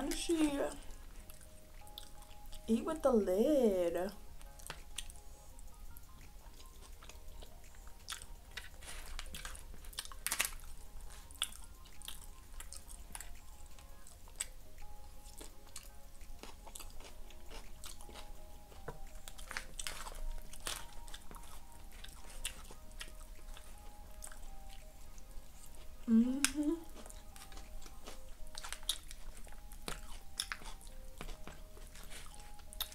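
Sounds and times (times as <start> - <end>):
person chewing food: 0.0 - 2.7, 4.2 - 32.9
faint background music: 0.0 - 32.9.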